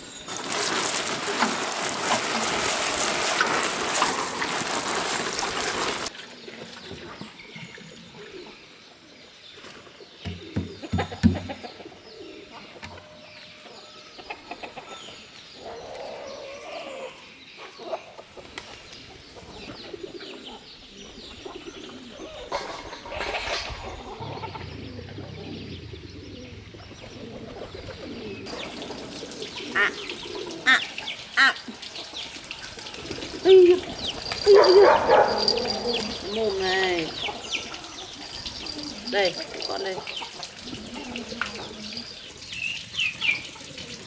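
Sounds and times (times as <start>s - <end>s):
birds chirping and calling: 6.9s - 44.0s
low bird calls: 18.8s - 44.0s.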